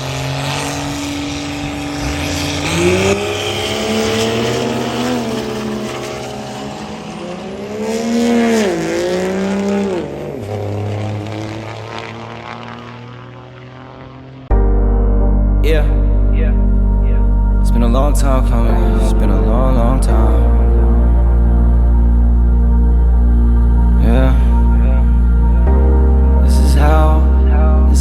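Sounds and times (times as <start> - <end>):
truck engine revving: 0.0 - 14.5.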